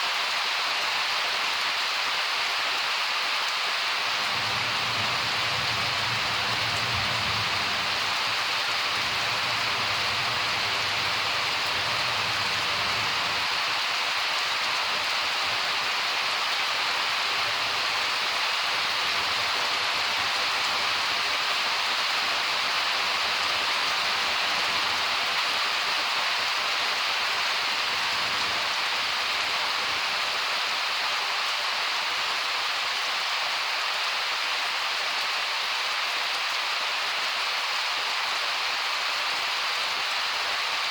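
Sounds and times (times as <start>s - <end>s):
heavy rain pouring: 0.0s - 40.9s
distant thunder rumble: 4.2s - 13.0s.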